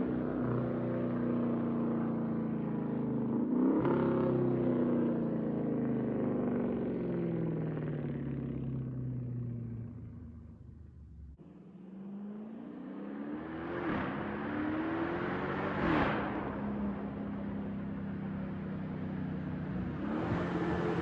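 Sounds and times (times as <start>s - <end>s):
car engine accelerating: 9.3s - 21.0s.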